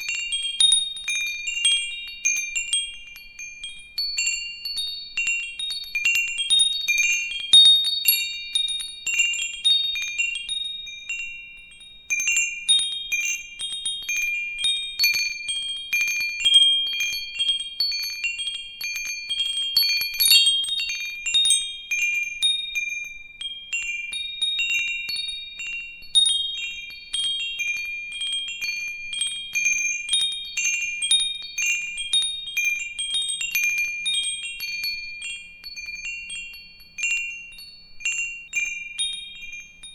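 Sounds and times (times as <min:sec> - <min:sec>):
wind chimes jingling: 0:09.1 - 0:39.9.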